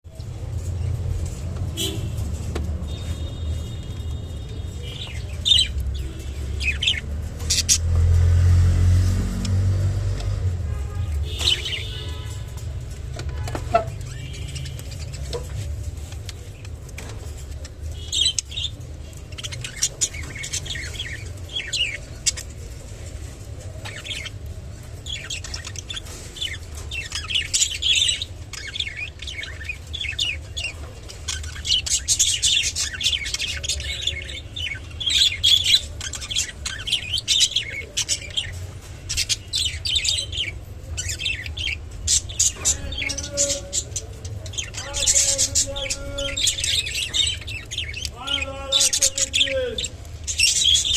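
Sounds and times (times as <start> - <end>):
budgerigars chirping: 2.9 - 8.2, 17.6 - 22.7, 23.8 - 24.4, 25.0 - 50.9.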